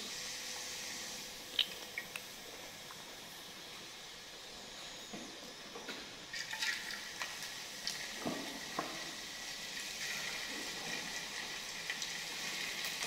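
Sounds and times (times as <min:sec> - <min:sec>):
potatoes sizzling in hot oil: 0:06.3 - 0:13.0.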